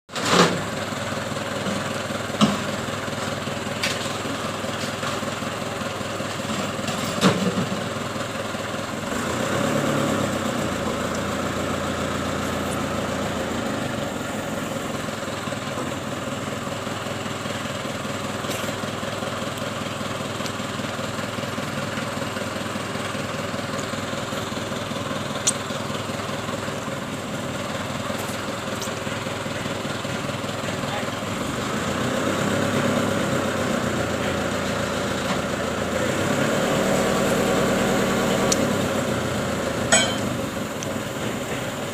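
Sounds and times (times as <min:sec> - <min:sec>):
truck engine idling: 0:00.2 - 0:41.9
sharp clicks: 0:25.4 - 0:25.6.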